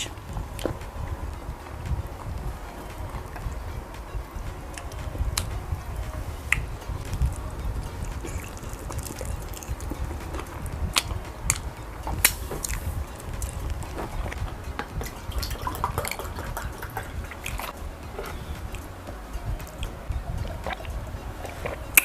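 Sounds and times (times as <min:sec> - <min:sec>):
wet smacking and chewing: 0:06.5 - 0:18.9.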